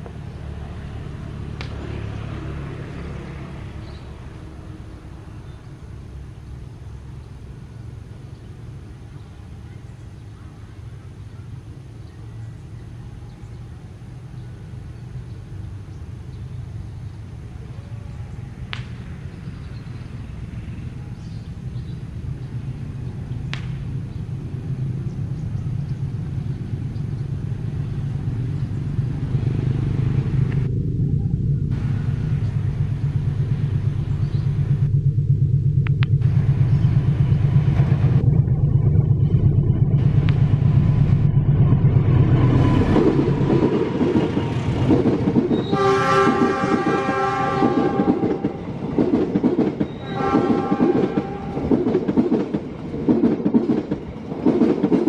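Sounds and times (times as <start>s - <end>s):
locomotive engine drone: 0.0s - 55.0s
coaches clattering over rail joints: 42.1s - 55.0s
train horn: 45.5s - 48.7s, 49.9s - 51.8s.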